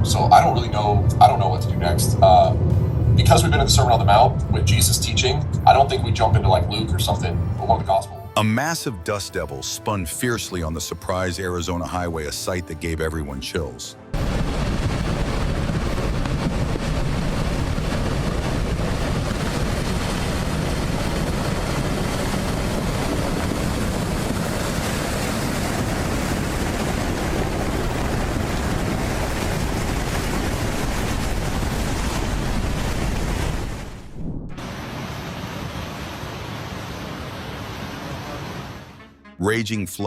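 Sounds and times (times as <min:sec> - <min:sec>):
strong wind buffeting microphone: 0:00.0 - 0:08.0, 0:14.2 - 0:37.3.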